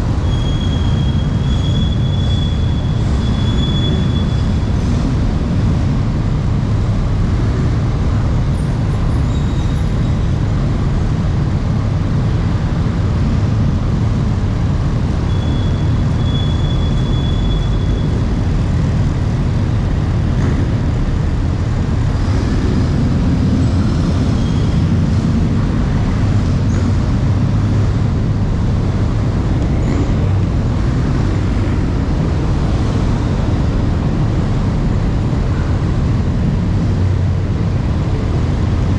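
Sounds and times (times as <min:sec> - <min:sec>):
vehicle engines and machinery rumbling: 0:00.0 - 0:38.9.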